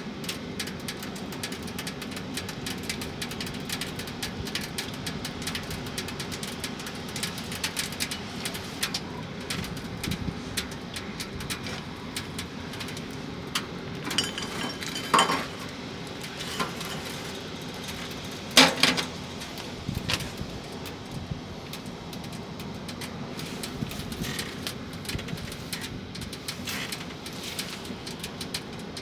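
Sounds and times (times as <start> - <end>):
rain falling on camper: 0.0 - 29.0
metal cookware clinks: 14.1 - 15.7.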